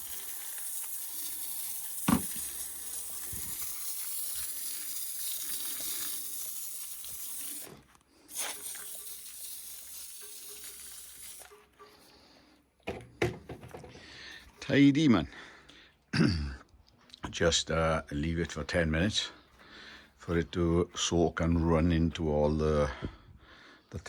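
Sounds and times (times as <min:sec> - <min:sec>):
foam sprayer hissing: 0:00.0 - 0:11.7.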